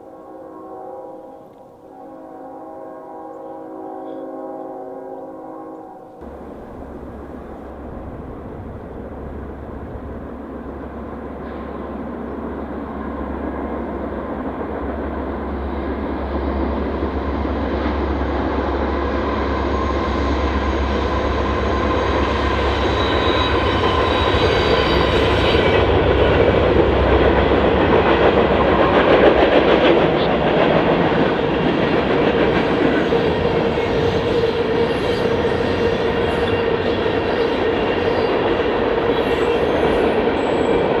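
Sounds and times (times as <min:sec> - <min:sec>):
diesel locomotive drone: 0:00.0 - 0:41.0
train wheels clickety-clack: 0:16.5 - 0:41.0.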